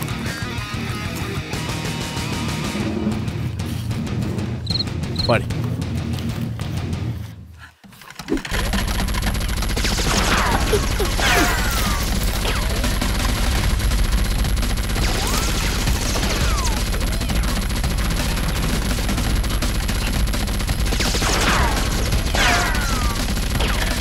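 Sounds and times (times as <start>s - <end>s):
rapid gunfire: 8.1s - 24.0s.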